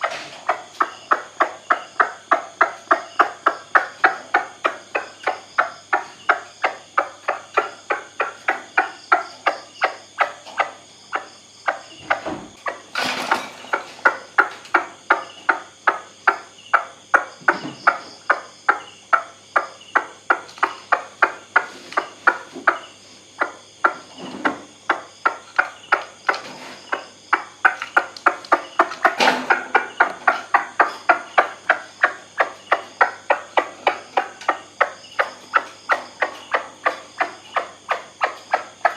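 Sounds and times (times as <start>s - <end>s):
sharp knocks: 28.6s - 30.4s.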